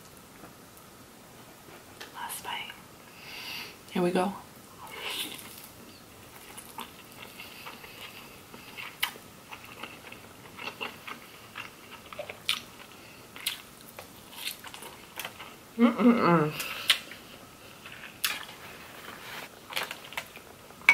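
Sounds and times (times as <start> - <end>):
chewing seafood: 5.3 - 15.6.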